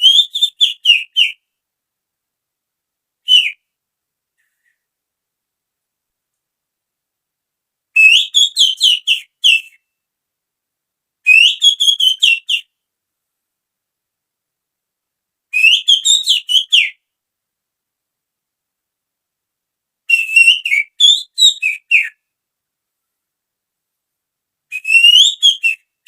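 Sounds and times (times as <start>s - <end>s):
finger whistling bird call: 0.0s - 1.4s, 3.3s - 3.6s, 8.0s - 9.8s, 11.3s - 12.7s, 15.6s - 17.0s, 20.1s - 22.2s, 24.7s - 25.9s.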